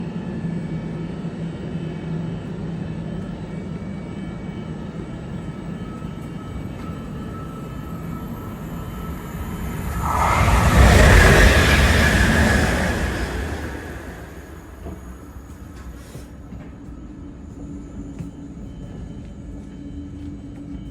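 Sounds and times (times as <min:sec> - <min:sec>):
train approaching rumble: 0:04.7 - 0:19.5.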